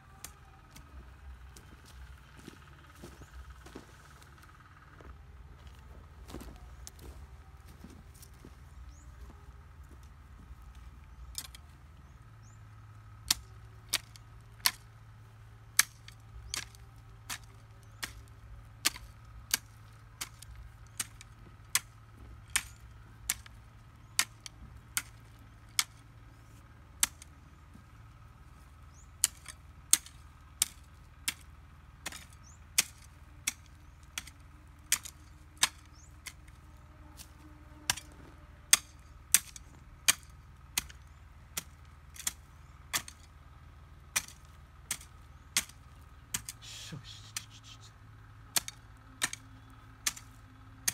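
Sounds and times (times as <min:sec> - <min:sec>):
faint low hum: 0:00.0 - 0:50.9
sharp chopping strikes: 0:44.1 - 0:47.8.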